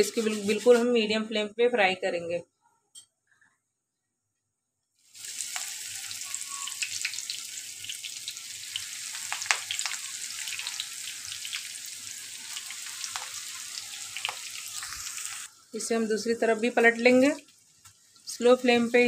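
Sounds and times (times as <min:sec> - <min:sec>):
food frying in hot oil: 0:05.0 - 0:19.0.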